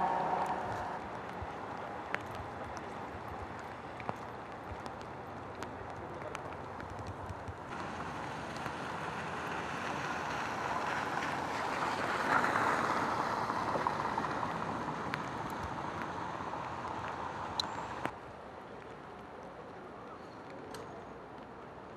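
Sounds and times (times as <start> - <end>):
tyres hissing on wet road: 0.0 - 1.1, 7.7 - 18.1.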